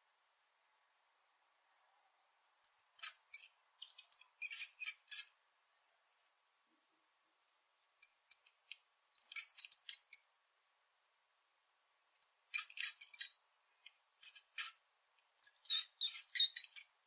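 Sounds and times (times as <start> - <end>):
small animal squeaking chirps: 2.6 - 5.4, 8.0 - 8.5, 9.2 - 10.3, 12.2 - 13.4, 14.2 - 17.0.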